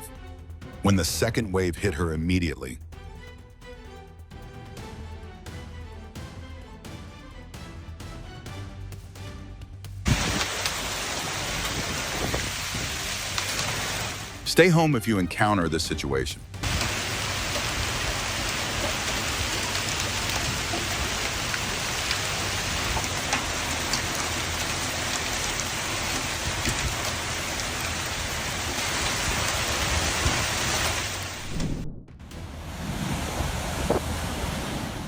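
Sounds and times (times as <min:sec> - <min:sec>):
hailstones ticking on hard surfaces: 0:10.0 - 0:14.6, 0:16.6 - 0:31.5
hail and rain falling: 0:10.0 - 0:14.9, 0:16.6 - 0:31.6.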